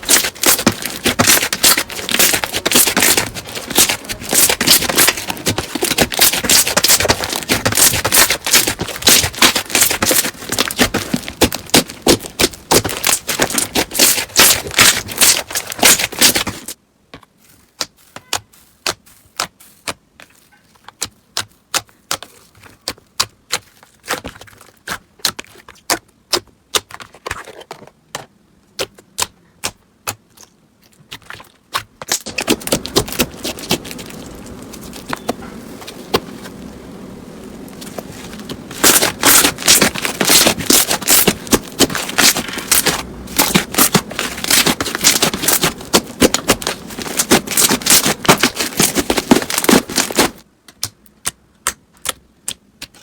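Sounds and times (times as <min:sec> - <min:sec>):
slime crackling and rubbing: 0:00.0 - 0:16.8, 0:30.9 - 0:50.4.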